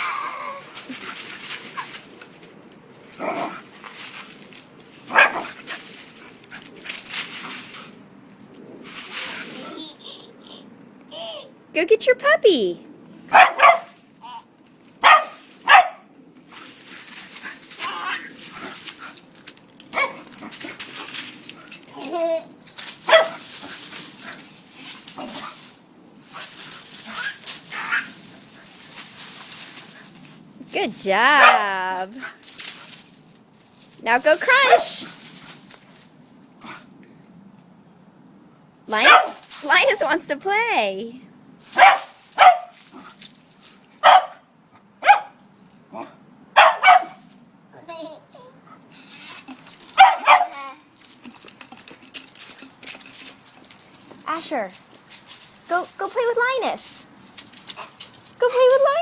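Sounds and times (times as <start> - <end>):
dry leaves crunching underfoot: 0.0 - 9.9, 13.3 - 22.0, 22.6 - 36.5, 38.9 - 40.4, 41.6 - 44.4, 49.6 - 59.0
dog barking: 5.1 - 5.5, 13.3 - 13.8, 15.0 - 16.0, 20.0 - 20.2, 23.1 - 23.4, 39.0 - 39.4, 41.8 - 42.7, 44.0 - 44.4, 45.0 - 45.4, 46.0 - 47.2, 50.0 - 50.6.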